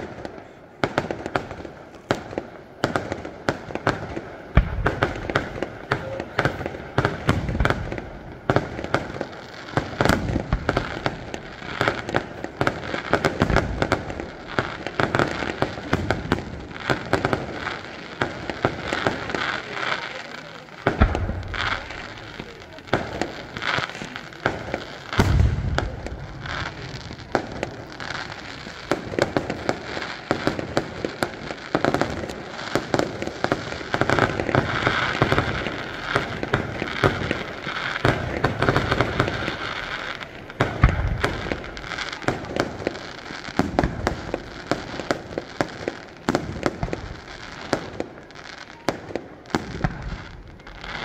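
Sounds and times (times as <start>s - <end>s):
firework bangs: 0.0s - 51.0s
firework crackling: 0.0s - 51.0s
deep booms: 25.2s - 27.4s.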